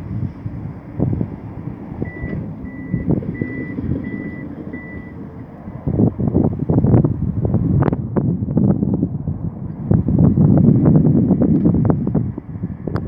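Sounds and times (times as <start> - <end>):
reversing alarm beeping: 2.0 - 5.2.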